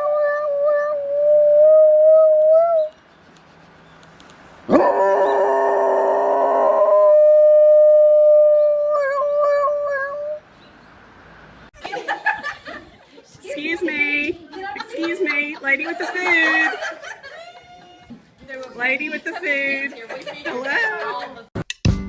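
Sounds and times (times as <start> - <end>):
dog howling: 4.7 - 10.4.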